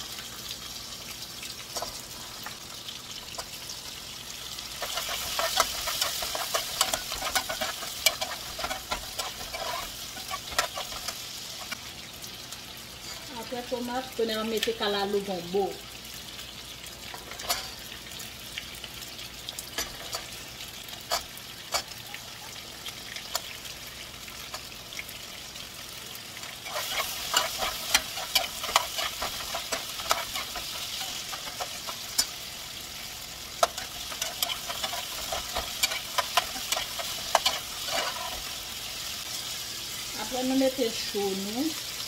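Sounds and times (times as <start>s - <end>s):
food sizzling in hot oil: 0.0s - 42.0s
spoon scraping a metal pot: 4.8s - 11.2s, 26.6s - 32.4s, 33.6s - 38.6s.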